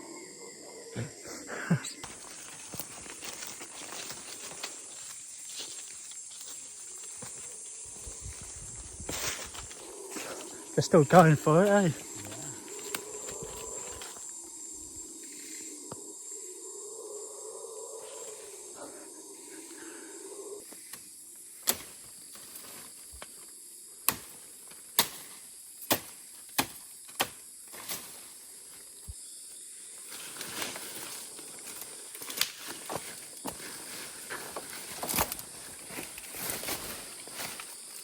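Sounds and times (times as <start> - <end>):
high-pitched insect buzz: 0.0 - 23.8
footsteps through leaf litter: 30.1 - 38.0.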